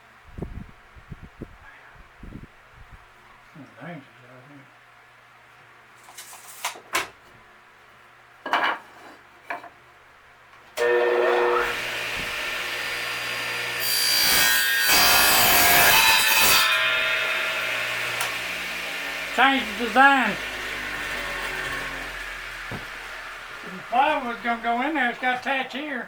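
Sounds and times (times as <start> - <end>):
power saw cutting wood: 10.8 - 25.8.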